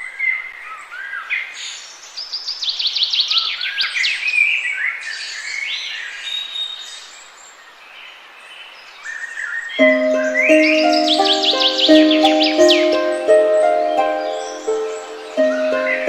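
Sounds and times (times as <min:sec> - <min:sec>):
songbirds singing: 0:08.0 - 0:16.0
bird trill: 0:09.8 - 0:16.0.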